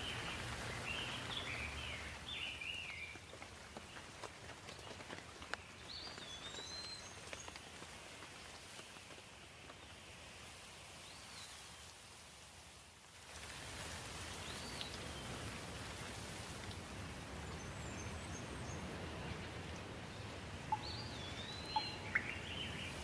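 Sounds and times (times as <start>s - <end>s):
water drips: 0.0s - 10.0s, 13.2s - 23.0s
rain pattering: 0.0s - 23.0s
bird chirps: 20.7s - 23.0s.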